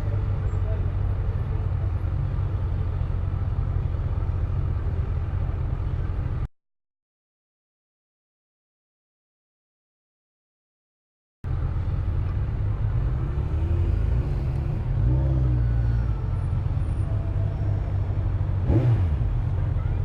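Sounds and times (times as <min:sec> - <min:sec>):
motorcycle engine: 0:11.5 - 0:20.0.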